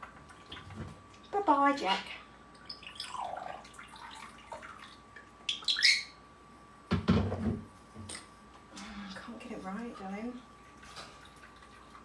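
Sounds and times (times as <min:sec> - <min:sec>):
parrot calls: 0:05.5 - 0:06.2
parrot whistle dipping and rising: 0:05.5 - 0:06.2.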